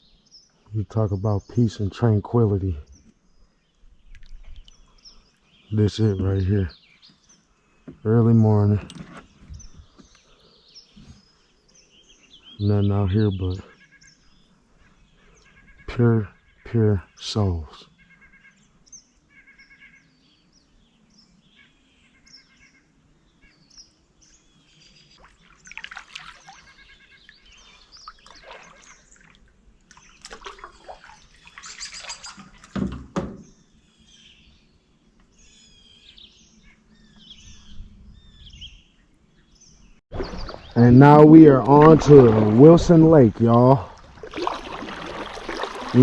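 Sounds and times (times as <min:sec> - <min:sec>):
birds chirping and trilling: 0:00.0 - 0:46.0
light water splashes: 0:25.1 - 0:32.8, 0:40.1 - 0:46.0
dull knock: 0:32.8 - 0:33.5.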